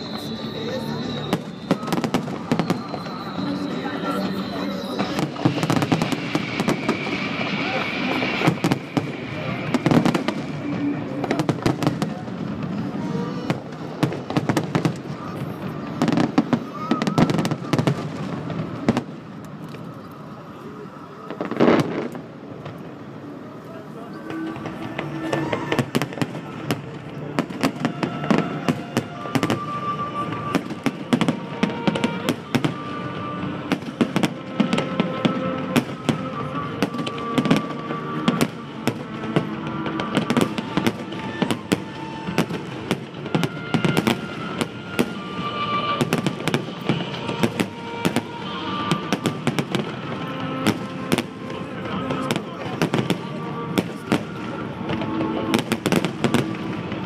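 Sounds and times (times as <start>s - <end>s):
fireworks bursting: 0.0s - 57.0s
music with held notes: 24.0s - 57.0s.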